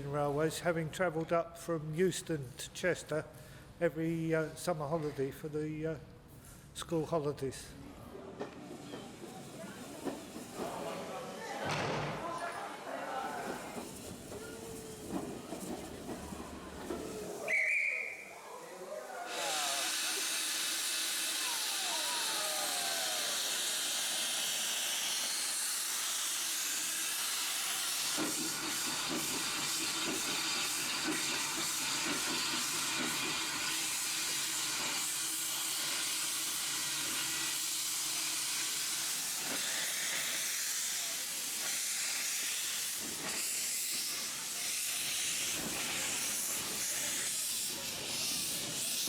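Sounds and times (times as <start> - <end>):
steam hissing from locomotive: 9.0 - 11.6, 13.1 - 49.0.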